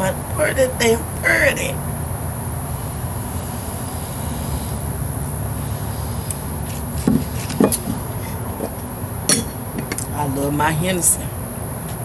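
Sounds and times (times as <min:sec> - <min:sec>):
short knocks: 0:07.0 - 0:10.0.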